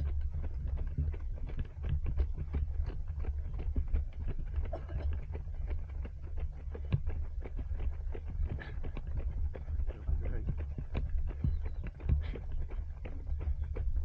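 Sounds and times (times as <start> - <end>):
low rumble of wind: 0.0 - 14.0
running footsteps on pavement: 0.0 - 14.0.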